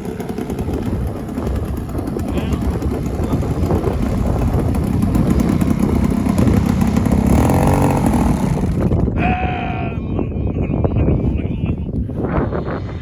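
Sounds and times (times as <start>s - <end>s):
model airplane engine running: 0.0s - 9.1s
wind buffeting microphone: 0.0s - 13.0s.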